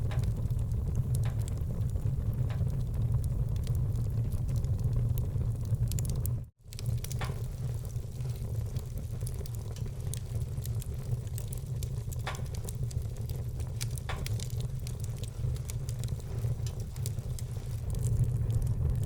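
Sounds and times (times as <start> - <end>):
fire low rumble: 0.0 - 19.0
wood fire crackling and popping: 0.0 - 19.0.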